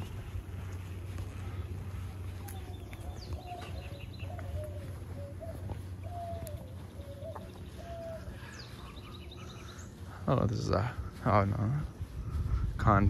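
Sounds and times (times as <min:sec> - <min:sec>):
higher bird chirps: 0:00.0 - 0:12.1
low steady rumble: 0:00.0 - 0:13.0.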